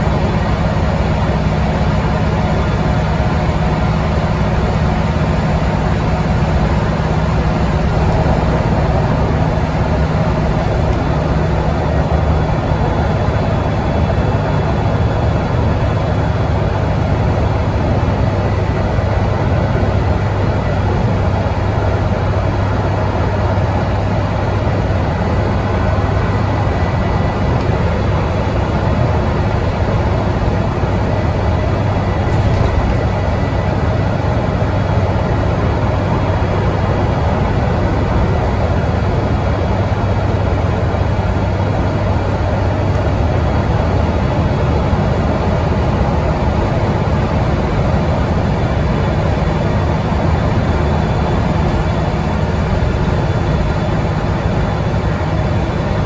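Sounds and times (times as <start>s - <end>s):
bus engine at high revs: 0.0s - 56.0s
road and tyre noise: 0.0s - 56.0s.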